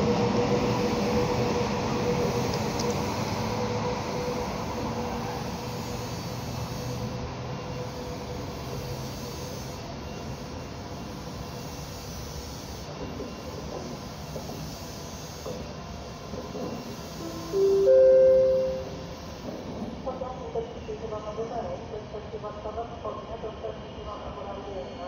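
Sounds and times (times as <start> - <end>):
train rumble: 0.0 - 9.0
faint high whine: 17.2 - 19.3.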